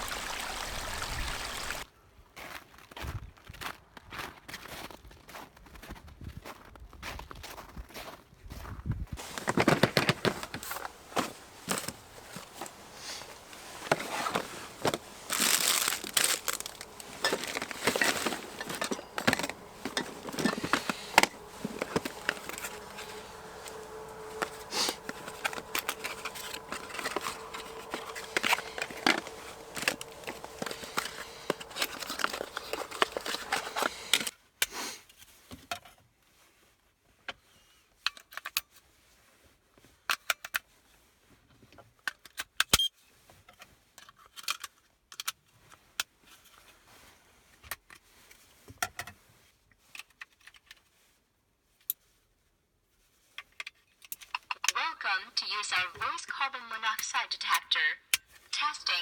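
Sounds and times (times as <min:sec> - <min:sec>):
crinkling and rustling: 0:09.2 - 0:34.3
faint steady hum: 0:09.2 - 0:34.3
handling clicks and knocks: 0:09.2 - 0:34.3.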